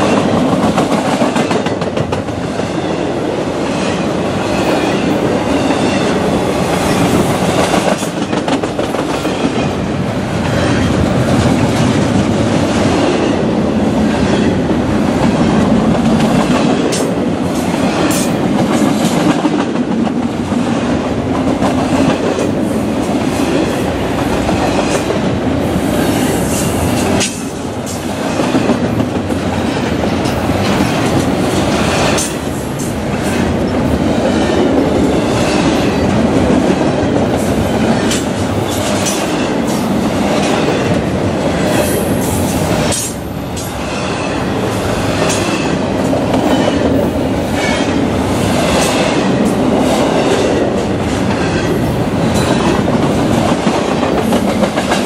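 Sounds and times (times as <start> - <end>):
roar of wheels on rail: 0.0 - 55.0.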